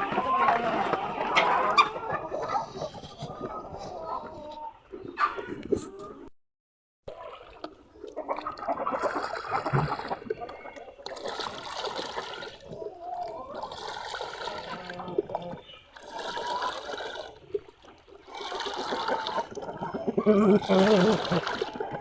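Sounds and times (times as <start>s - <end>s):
water running and splashing: 7.2s - 22.0s.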